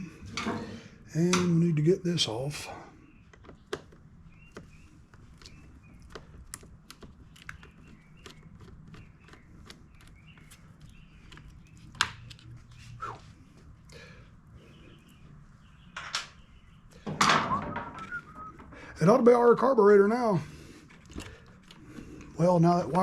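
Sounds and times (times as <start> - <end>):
hand tools clicking and tapping: 3.3 - 12.5.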